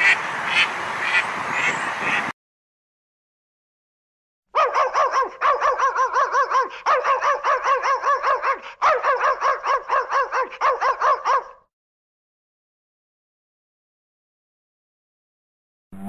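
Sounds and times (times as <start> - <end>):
dog barking in high yaps: 4.6 - 11.7.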